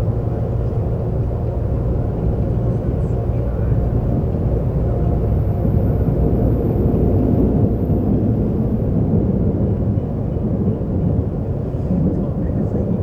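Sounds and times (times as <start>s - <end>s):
subway train rumbling: 0.0s - 13.0s.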